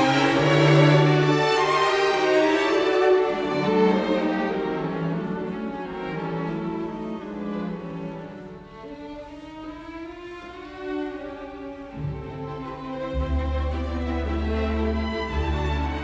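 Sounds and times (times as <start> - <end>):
violin and cello slow held notes: 0.0 - 8.9.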